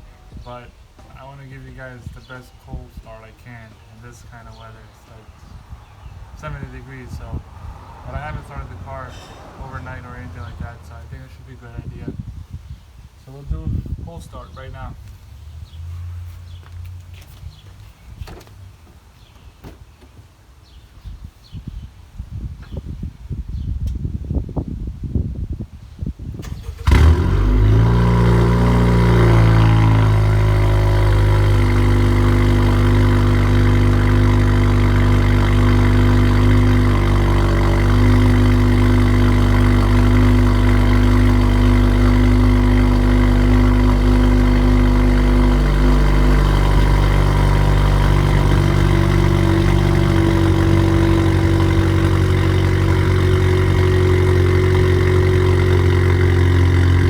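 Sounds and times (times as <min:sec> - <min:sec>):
car engine idling: 0:00.0 - 0:12.1, 0:26.4 - 0:57.0.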